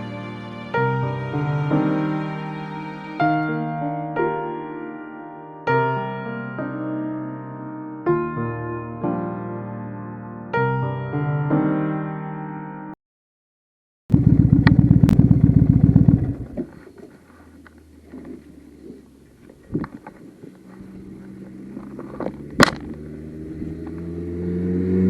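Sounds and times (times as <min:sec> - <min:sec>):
motorcycle engine running: 0:14.1 - 0:16.7
engine hum: 0:14.1 - 0:25.0.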